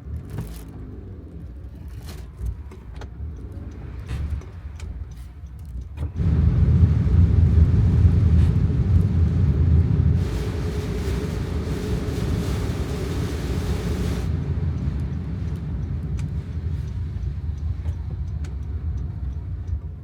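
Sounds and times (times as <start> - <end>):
heavy rain on a vehicle: 6.2 - 19.7.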